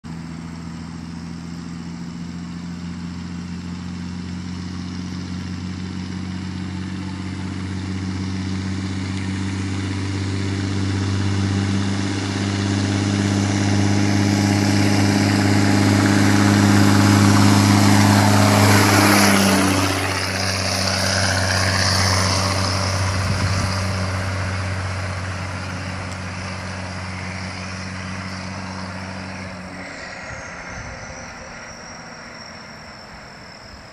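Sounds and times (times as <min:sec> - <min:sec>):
truck engine under load: 0:00.0 - 0:33.9
turbocharger whistle: 0:26.0 - 0:33.9.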